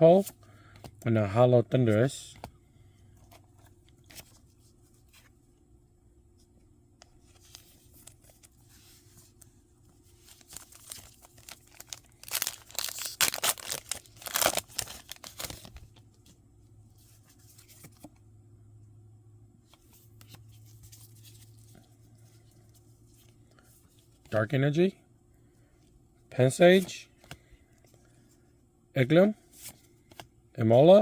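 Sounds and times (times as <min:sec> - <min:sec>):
foil wrapper ripping and crinkling: 0:10.3 - 0:15.8.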